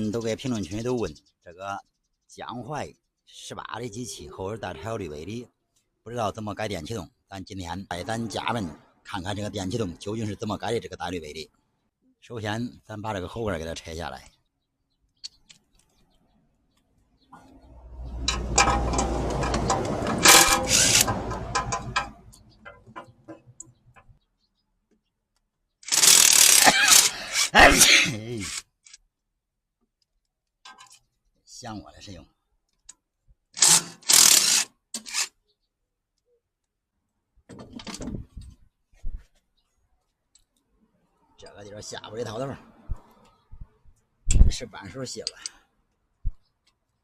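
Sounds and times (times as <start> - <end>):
wrench and socket clattering: 18.2 - 23.1
handheld power tool running: 18.9 - 22.0, 25.9 - 27.5, 33.6 - 34.7.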